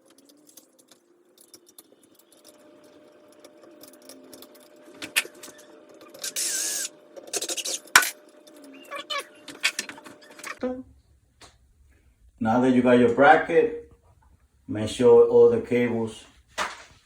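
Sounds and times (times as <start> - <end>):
rasping metal scrape: 3.9 - 10.0.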